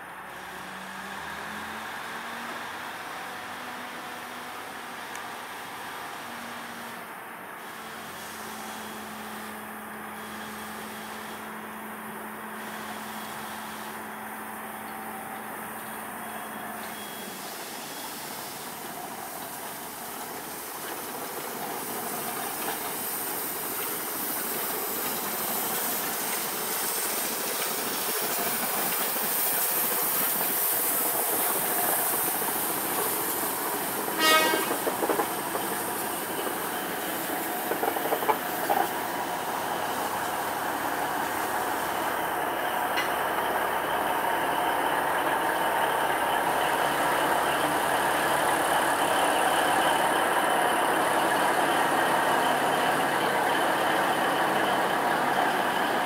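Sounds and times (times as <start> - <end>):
train running noise: 0.0 - 56.0
train horn blast: 34.2 - 35.0.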